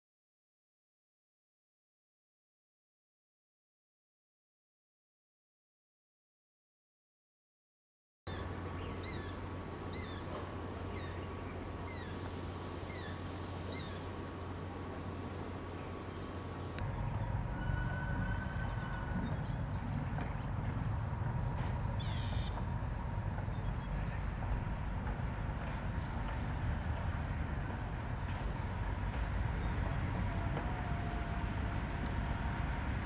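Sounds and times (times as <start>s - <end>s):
bird chirping: 15.4s - 26.4s
high-pitched hiss or drone: 16.8s - 33.0s
low rumble: 16.8s - 33.0s.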